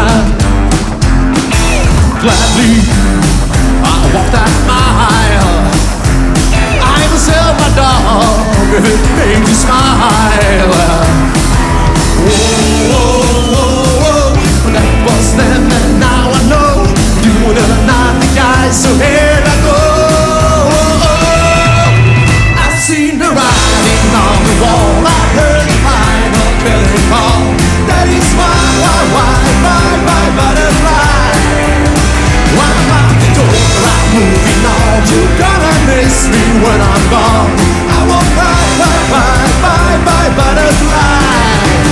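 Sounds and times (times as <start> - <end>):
live rockabilly band playing: 0.0 - 41.9.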